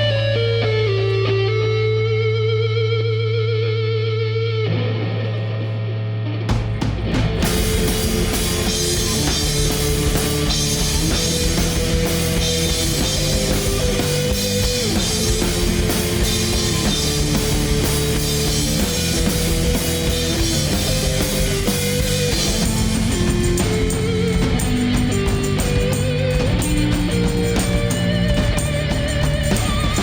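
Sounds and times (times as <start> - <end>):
bass guitar: 0.0 - 30.0
distorted electric guitars: 0.0 - 30.0
driving drum beat: 6.5 - 30.0.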